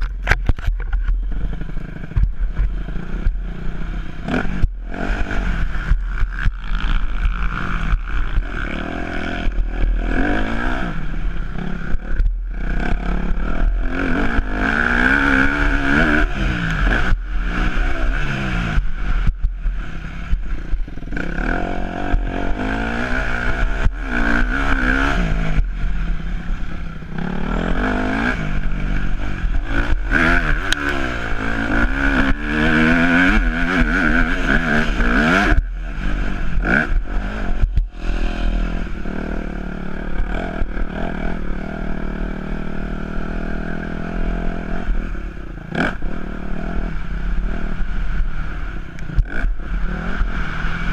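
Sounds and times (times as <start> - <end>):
motocross bike engine revving: 0.0 - 50.9.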